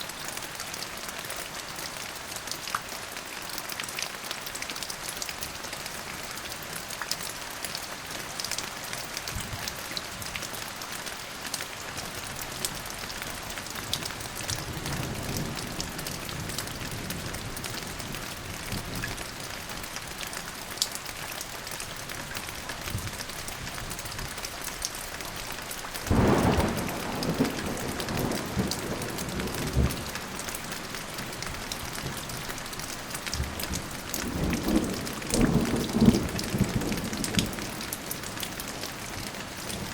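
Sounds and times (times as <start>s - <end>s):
steady rain falling: 0.0s - 39.9s
loud thunderclap: 26.1s - 30.1s
distant thunder rumble: 26.1s - 30.4s.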